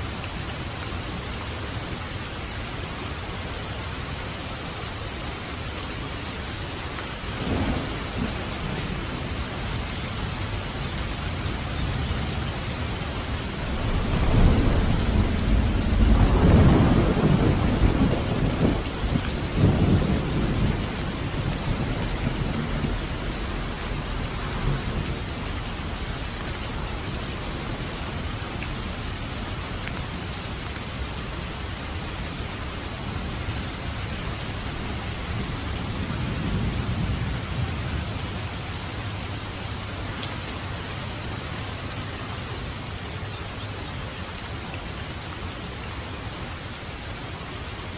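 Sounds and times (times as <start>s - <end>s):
rain on a roof: 0.0s - 47.9s
rolling thunder: 7.4s - 9.4s, 13.4s - 26.1s, 34.7s - 38.0s.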